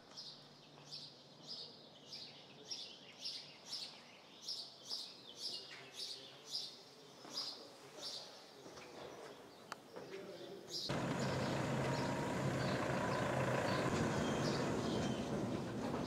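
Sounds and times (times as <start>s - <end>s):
bird chirping: 10.7s - 16.0s.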